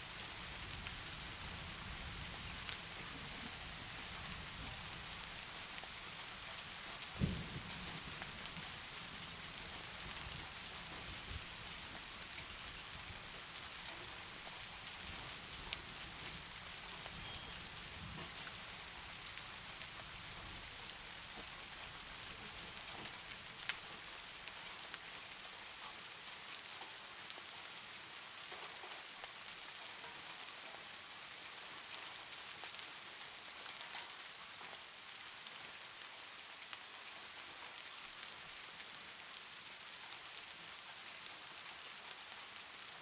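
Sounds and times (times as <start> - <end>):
rain hissing: 0.0 - 23.8.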